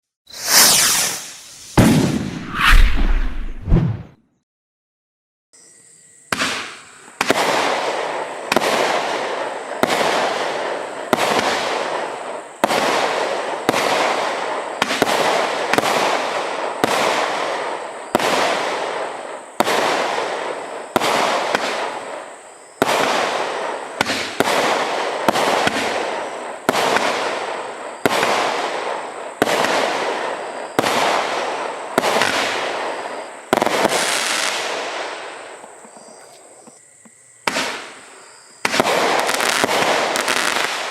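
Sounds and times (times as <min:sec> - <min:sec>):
firework barrage bangs: 0:00.3 - 0:04.1, 0:38.6 - 0:40.9.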